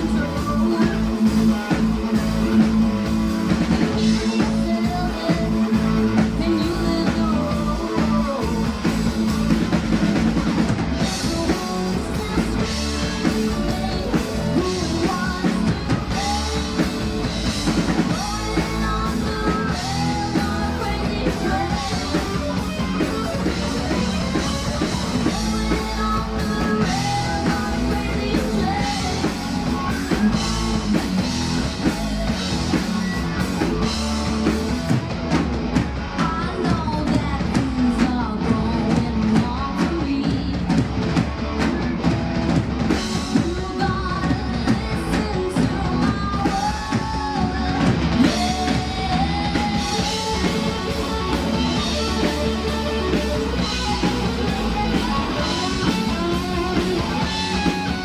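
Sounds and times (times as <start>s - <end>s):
rock band with sung vocal: 0.0s - 58.0s.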